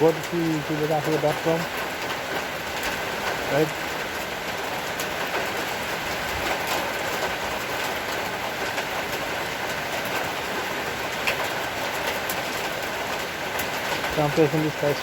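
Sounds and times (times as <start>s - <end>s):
raindrop clicking: 0.0s - 1.7s
heavy rain hissing: 0.0s - 15.0s.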